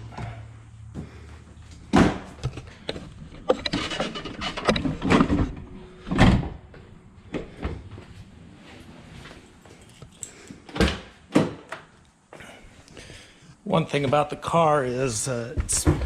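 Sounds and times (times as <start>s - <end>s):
convertible top clicks and creaks: 2.4s - 5.7s.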